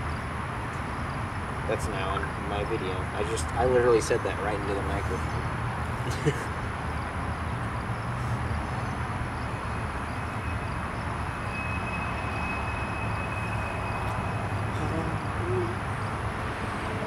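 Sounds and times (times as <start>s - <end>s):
wheel squeal: 10.2s - 14.5s.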